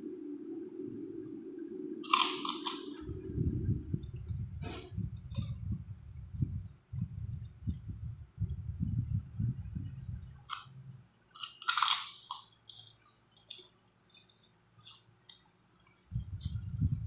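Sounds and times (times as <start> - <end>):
close chewing sounds: 2.0 - 4.2, 11.4 - 16.6.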